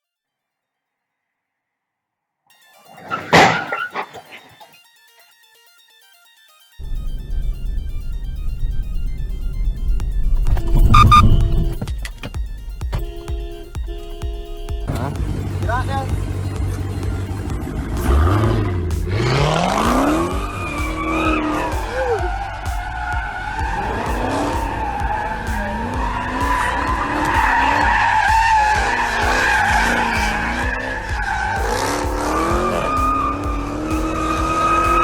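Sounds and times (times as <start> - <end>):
tyres squealing: 2.8 - 4.8, 14.9 - 35.0
car engine revving: 6.8 - 35.0.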